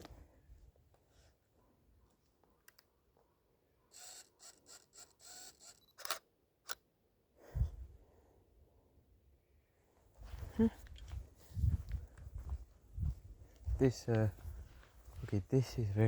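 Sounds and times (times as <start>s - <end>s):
camera shutter clicks: 3.9s - 6.8s.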